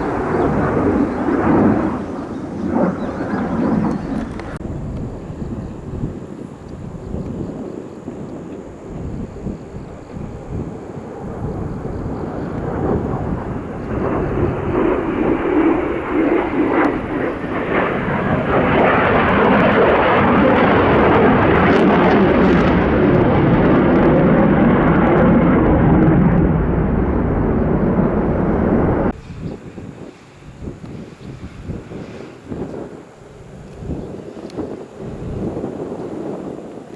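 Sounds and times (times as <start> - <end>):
fighter jet passing: 0.0 - 33.5.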